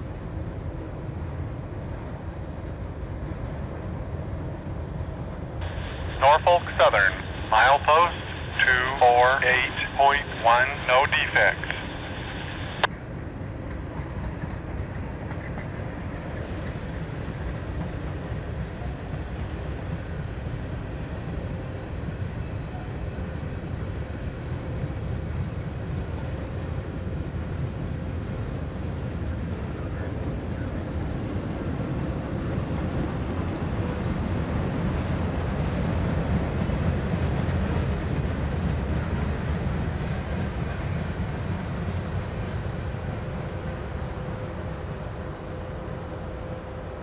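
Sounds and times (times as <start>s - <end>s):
steel wheels rumbling on rail: 11.7s - 47.0s.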